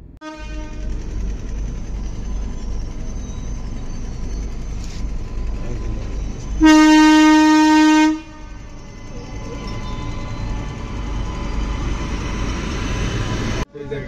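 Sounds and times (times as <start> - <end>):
train rumble inside coach: 0.0 - 14.0
train horn blast: 0.2 - 1.2, 6.6 - 8.8.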